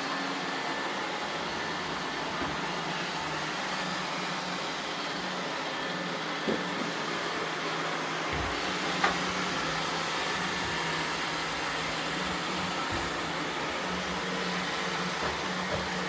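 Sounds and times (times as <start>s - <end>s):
robot vacuum whirring: 0.0s - 16.0s.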